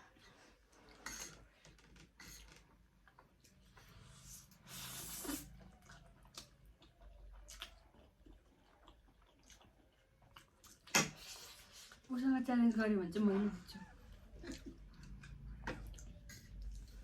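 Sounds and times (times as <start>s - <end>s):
wet chewing: 2.4s - 12.1s
noodle slurp: 4.3s - 5.7s.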